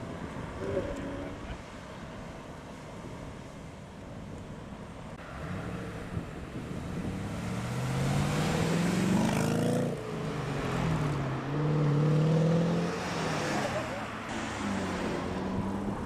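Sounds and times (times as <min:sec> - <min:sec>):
car engine accelerating past: 0:07.0 - 0:16.0.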